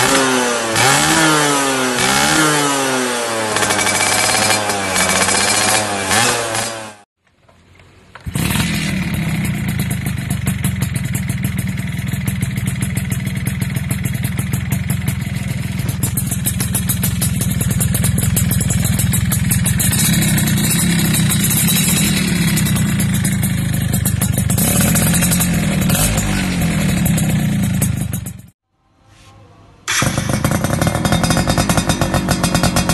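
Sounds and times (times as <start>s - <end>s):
motorcycle engine revving: 0.0s - 7.1s, 8.2s - 28.6s, 29.9s - 32.9s
two-stroke engine at high revs: 0.0s - 7.1s, 8.2s - 28.6s, 29.9s - 32.9s.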